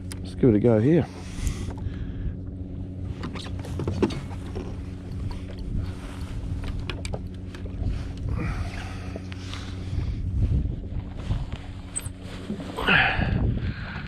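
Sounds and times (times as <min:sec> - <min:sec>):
jetski engine idling: 0:00.0 - 0:11.0
fishing tackle clicks and knocks: 0:06.6 - 0:08.3.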